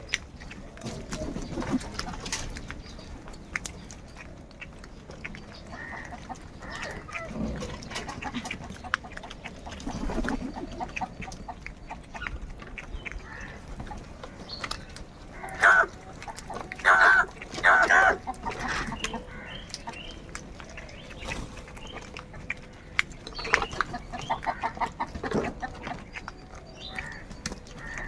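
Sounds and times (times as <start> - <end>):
crows cawing: 5.7 - 7.1, 13.2 - 13.6, 15.3 - 15.9, 16.8 - 19.6, 27.0 - 27.2, 27.8 - 28.0.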